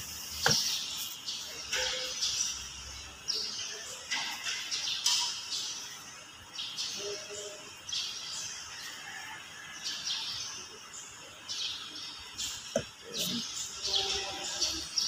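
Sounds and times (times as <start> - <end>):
bird chirping: 0.0 - 8.9, 9.9 - 15.0.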